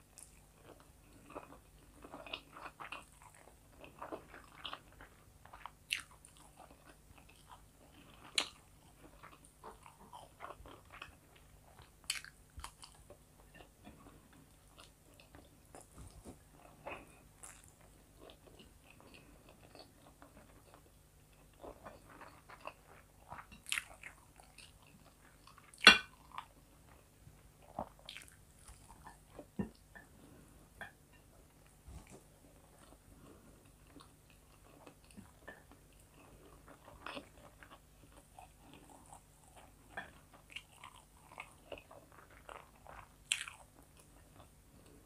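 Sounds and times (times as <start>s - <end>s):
close chewing and mouth sounds: 0.0s - 45.0s.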